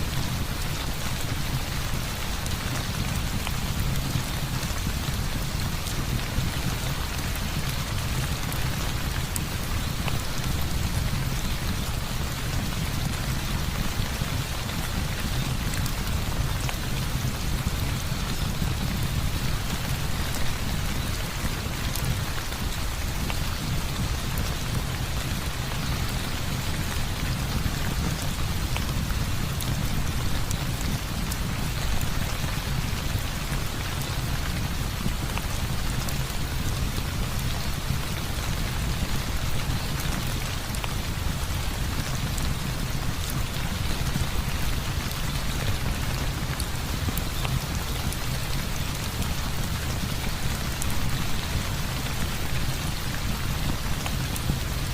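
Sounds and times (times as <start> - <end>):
heavy rain falling: 0.0 - 54.9.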